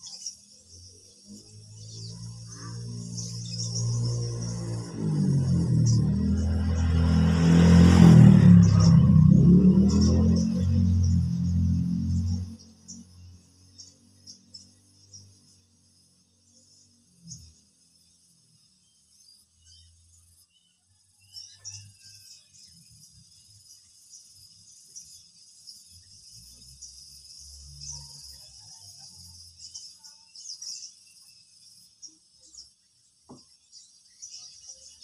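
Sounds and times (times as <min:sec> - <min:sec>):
insects chirping: 0:00.0 - 0:35.0
low rumbles: 0:03.6 - 0:13.1.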